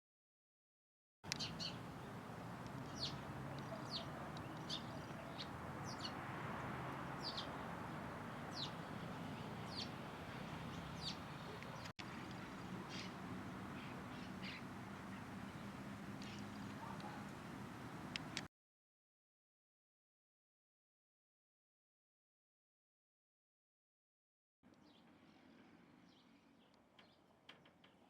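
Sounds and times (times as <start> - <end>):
bird chirping: 1.3 - 17.3.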